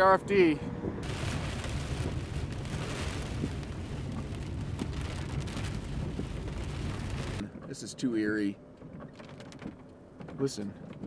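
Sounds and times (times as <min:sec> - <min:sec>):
low rumble: 0:00.6 - 0:07.5
rain on car windshield: 0:01.0 - 0:07.4, 0:09.0 - 0:11.0.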